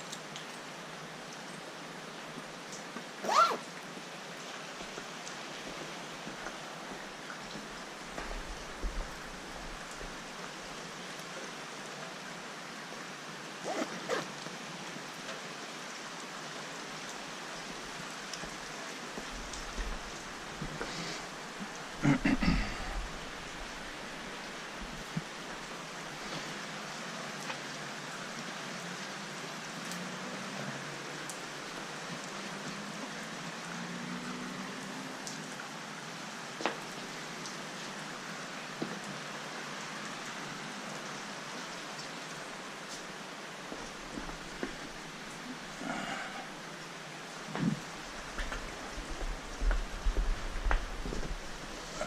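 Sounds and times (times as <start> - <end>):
steady rain falling: 0.0 - 52.0
squeaky pitch-sliding sounds: 3.2 - 3.6.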